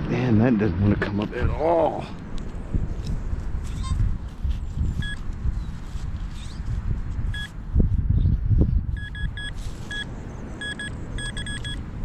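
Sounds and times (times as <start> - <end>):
metal detector beeps: 3.7 - 4.0, 5.0 - 5.2, 7.3 - 7.6, 8.9 - 11.8.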